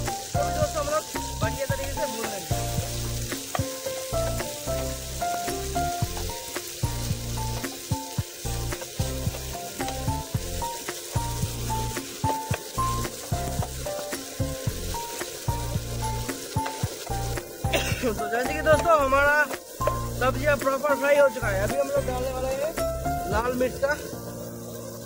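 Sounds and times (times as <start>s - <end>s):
background music with bass: 0.0s - 25.0s
vegetables sizzling in oil: 0.0s - 25.0s
spatula knocking and scraping pan: 1.1s - 20.2s.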